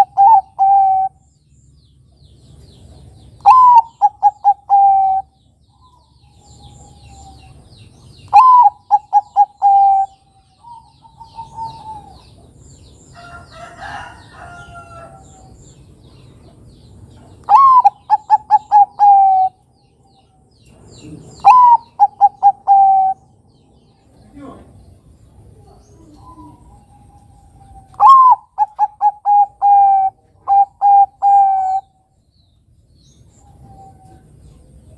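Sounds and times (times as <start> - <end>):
doves cooing: 0.0 - 1.3, 3.4 - 7.6, 8.3 - 12.6, 17.4 - 19.6, 21.0 - 23.4, 24.3 - 32.0
faint bird calls: 0.0 - 1.3, 3.4 - 32.2, 33.1 - 34.7.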